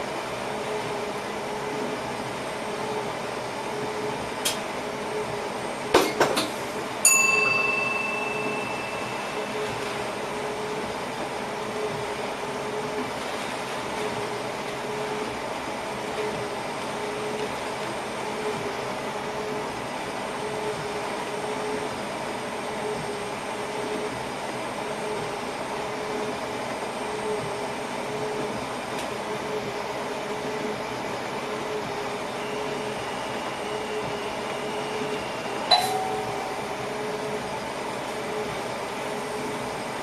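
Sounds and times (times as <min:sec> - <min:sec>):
train hum and rumble: 0:00.0 - 0:40.0
sharp click with ring: 0:35.7 - 0:36.6
faint pulsing tone: 0:35.7 - 0:37.4.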